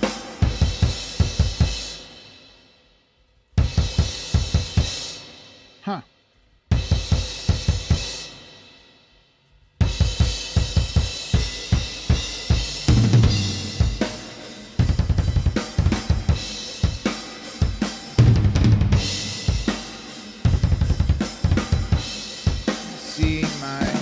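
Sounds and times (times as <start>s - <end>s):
fast metal drumming: 10.0s - 24.0s.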